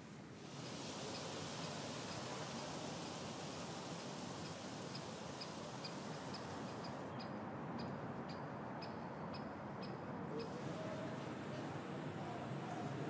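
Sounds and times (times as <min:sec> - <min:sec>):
faint steady hiss: 0:00.0 - 0:13.0
bird chirping: 0:04.0 - 0:13.0.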